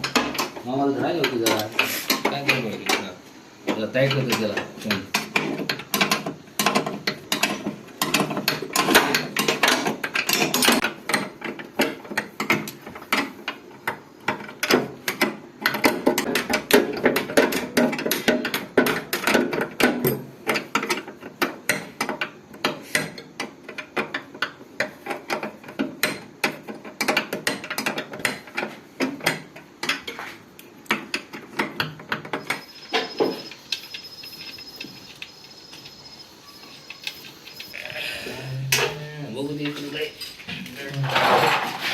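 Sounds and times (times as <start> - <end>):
metal tools clicking and knocking: 4.0 - 13.6, 30.9 - 37.8.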